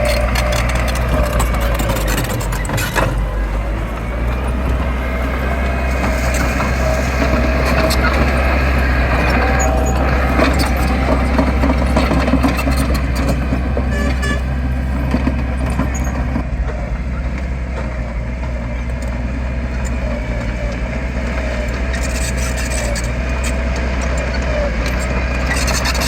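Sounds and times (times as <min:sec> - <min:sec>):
people's voices: 0:00.0 - 0:18.6
diesel engine rumbling: 0:00.0 - 0:26.0.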